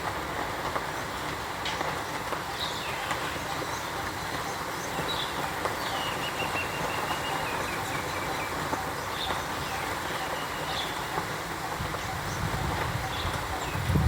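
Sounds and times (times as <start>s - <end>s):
steady rushing noise: 0.0s - 14.0s.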